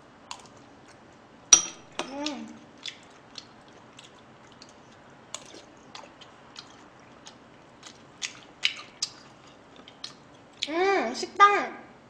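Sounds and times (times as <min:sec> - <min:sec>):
person chewing close up: 0:00.2 - 0:01.2, 0:02.2 - 0:10.7.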